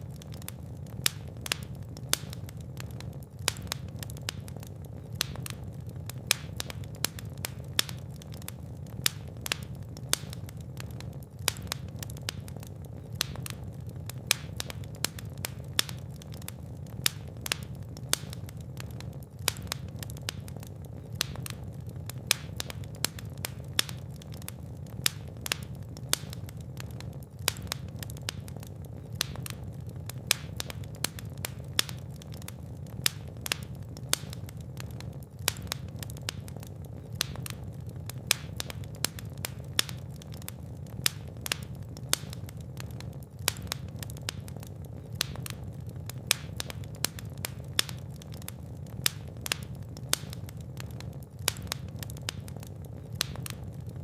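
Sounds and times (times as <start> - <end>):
fire crackling and popping: 0.0 - 54.0
low rumble of flames: 0.0 - 54.0.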